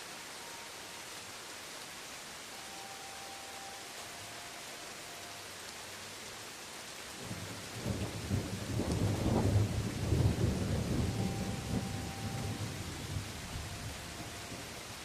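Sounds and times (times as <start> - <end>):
rain falling on leaves: 0.0 - 15.0
thunder rumble: 7.2 - 14.8.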